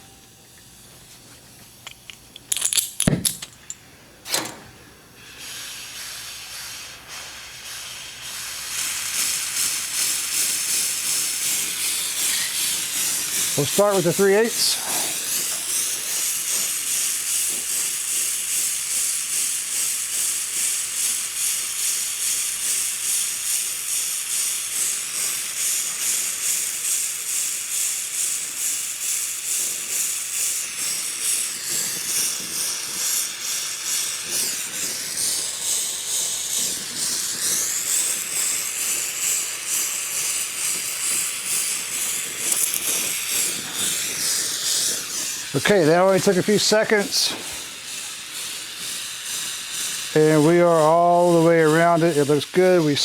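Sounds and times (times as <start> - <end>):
gas torch flame hissing: 0.0 - 53.0.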